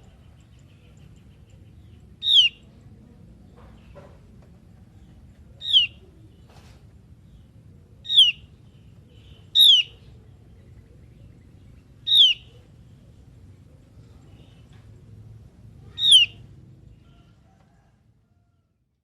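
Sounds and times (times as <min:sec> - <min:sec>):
bird whistling downward notes: 0:12.1 - 0:12.4, 0:16.0 - 0:16.4.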